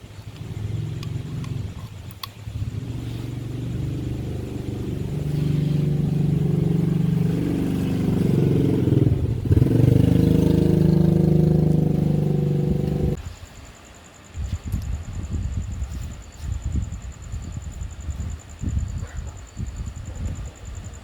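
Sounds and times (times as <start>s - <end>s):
motorcycle engine revving: 0.0s - 13.2s.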